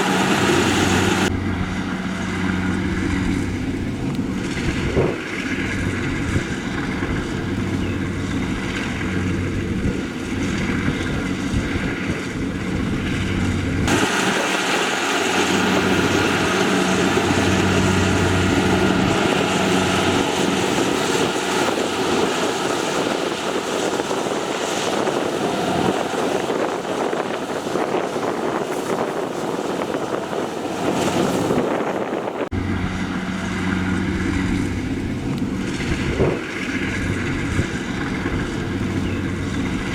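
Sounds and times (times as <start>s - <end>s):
loud noisy machine: 0.0s - 29.3s
harvesting machine engine humming: 0.0s - 39.9s.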